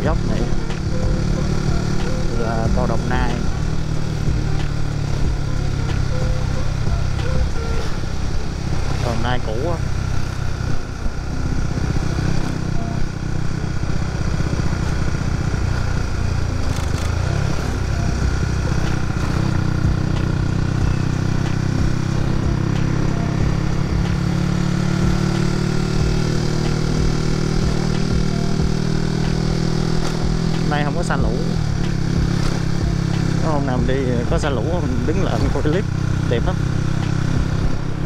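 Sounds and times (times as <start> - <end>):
motorcycle engine riding: 0.0 - 38.0.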